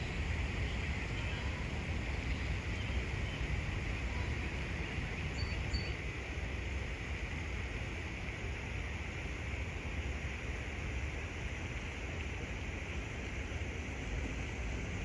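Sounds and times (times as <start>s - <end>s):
faint high chirps: 5.3s - 6.0s.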